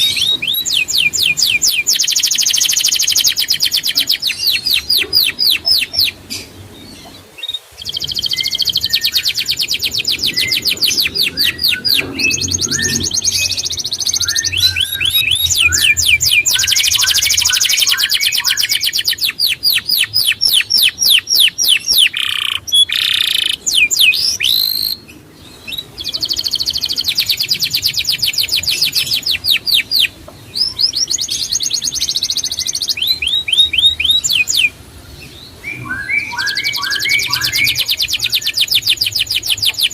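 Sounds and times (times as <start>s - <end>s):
songbird singing high trills: 0.0s - 39.9s.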